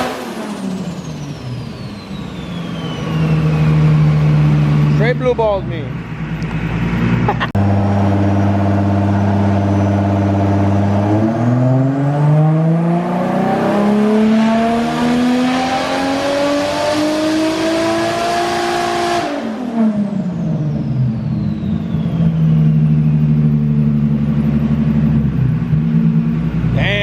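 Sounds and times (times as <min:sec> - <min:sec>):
car engine revving: 0:00.0 - 0:27.0
turbo whistle: 0:01.3 - 0:04.2, 0:09.2 - 0:10.6.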